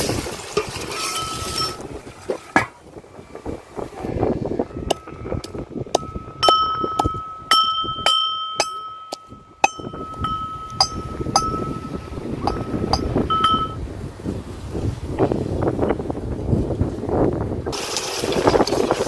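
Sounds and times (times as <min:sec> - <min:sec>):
utensil knocking metal pot: 0:04.9 - 0:13.8.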